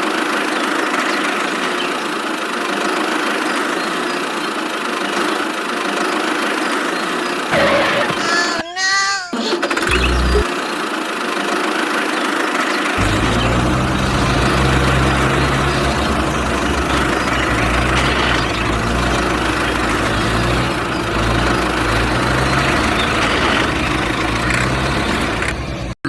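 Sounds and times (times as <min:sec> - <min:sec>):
tractor engine idling: 0:09.8 - 0:26.0.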